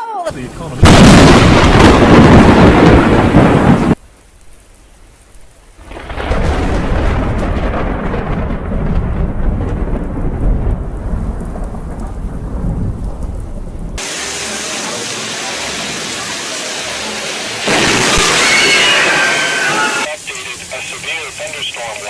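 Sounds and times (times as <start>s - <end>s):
heavy rain: 0.3s - 22.0s
thunder rumbling: 0.8s - 14.6s.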